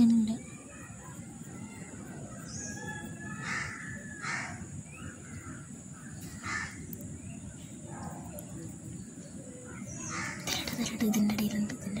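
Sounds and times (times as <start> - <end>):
bird cawing: 2.8 - 6.9, 10.0 - 10.5.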